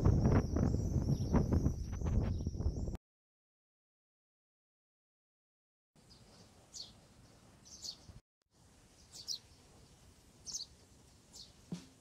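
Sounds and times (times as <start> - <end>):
small bird chirping: 6.0 - 8.2, 8.9 - 11.9
low background hiss: 6.0 - 12.0.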